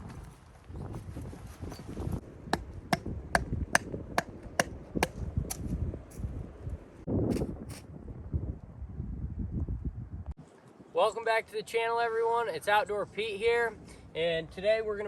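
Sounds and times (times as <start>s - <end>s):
hand tool striking wood: 2.6s - 5.7s.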